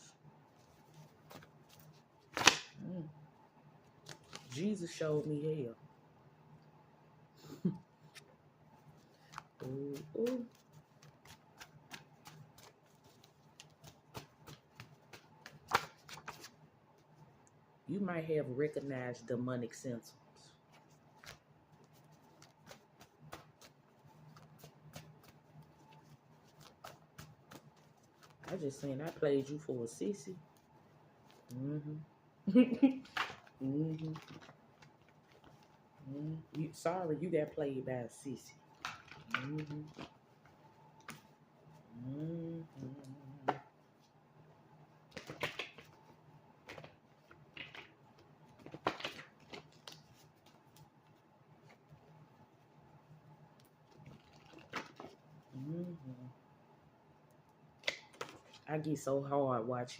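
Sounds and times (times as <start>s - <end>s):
low steady hum: 0.0s - 59.9s
cards being shuffled: 0.6s - 2.8s, 4.0s - 4.7s, 9.1s - 16.6s, 20.8s - 29.8s, 45.1s - 50.9s.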